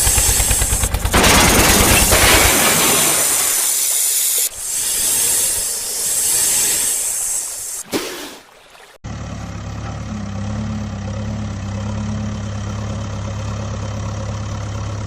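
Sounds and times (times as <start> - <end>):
engine chugging: 0.0 - 7.8, 9.0 - 15.0
loud hissing: 0.0 - 7.9.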